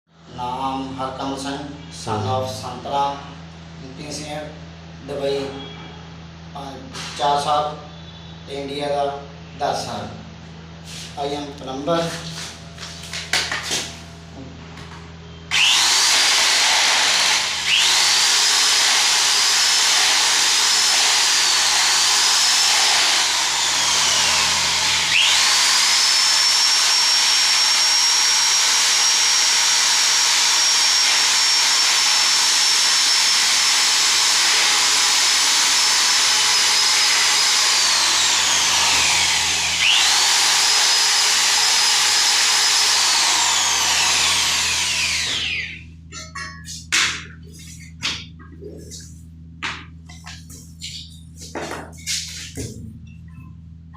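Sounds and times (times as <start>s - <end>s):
power tool motor whine: 15.5s - 45.8s.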